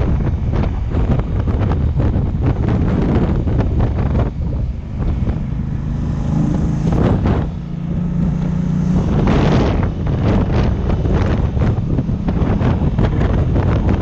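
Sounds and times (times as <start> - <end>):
motorcycle engine drone: 0.0 - 14.0
wind buffeting microphone: 0.0 - 14.0.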